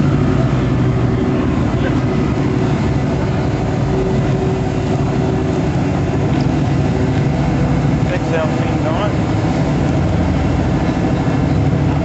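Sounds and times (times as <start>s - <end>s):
turbocharged engine running steadily: 0.0s - 12.0s.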